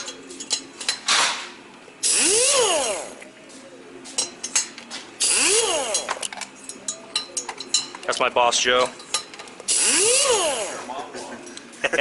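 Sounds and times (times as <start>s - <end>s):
valve seat grinder spinning: 2.0s - 3.2s, 5.2s - 6.3s, 9.6s - 10.9s.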